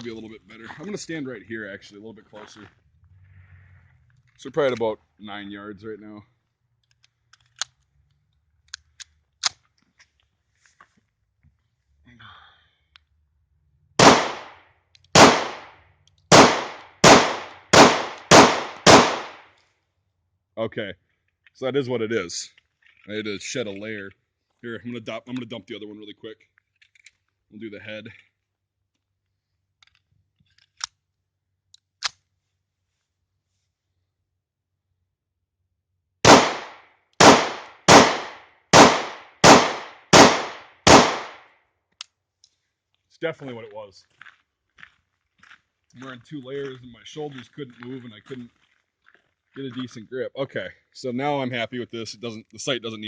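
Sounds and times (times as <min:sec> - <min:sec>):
pistol shots: 0:14.0 - 0:14.6, 0:15.2 - 0:19.5, 0:36.2 - 0:41.4.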